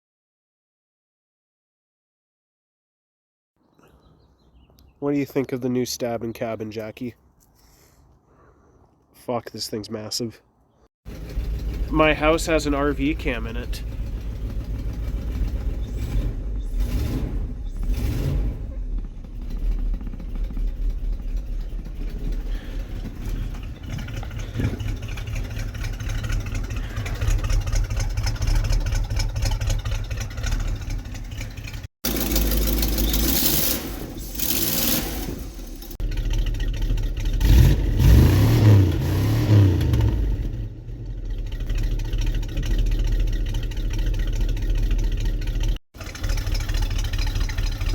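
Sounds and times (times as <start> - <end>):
engine idling with loping chop: 11.1 - 47.9
engine revving: 11.1 - 47.9.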